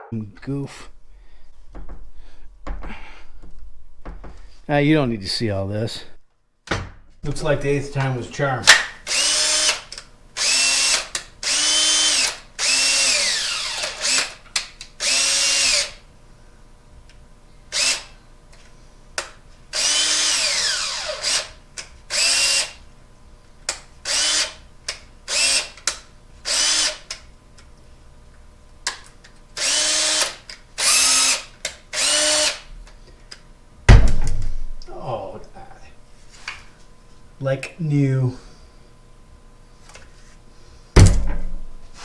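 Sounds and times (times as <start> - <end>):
cordless drill motor whirring: 9.1 - 14.4, 15.0 - 16.0, 17.7 - 18.2, 19.7 - 22.8, 24.0 - 24.6, 25.3 - 25.8, 26.5 - 27.1, 29.6 - 32.6.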